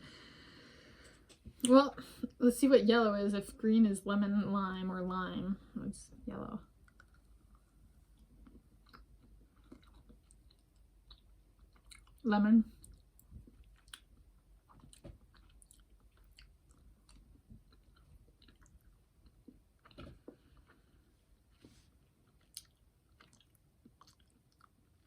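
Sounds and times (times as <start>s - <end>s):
wet mouth clicks and smacks: 6.8s - 7.6s
chewing candy: 6.8s - 25.0s.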